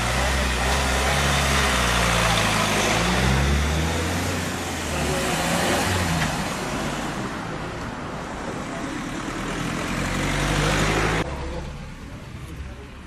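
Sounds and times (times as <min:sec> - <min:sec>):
car engine pulling away: 0:09.0 - 0:11.7.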